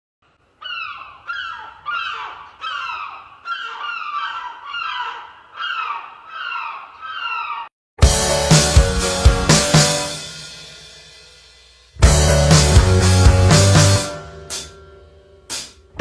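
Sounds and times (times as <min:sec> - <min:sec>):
bird calling: 0:00.4 - 0:07.7.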